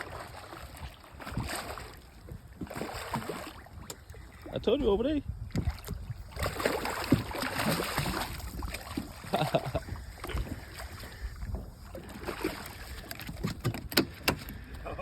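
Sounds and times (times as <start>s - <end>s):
water splashing and sloshing: 0.0s - 15.0s
wind on microphone: 0.6s - 15.0s.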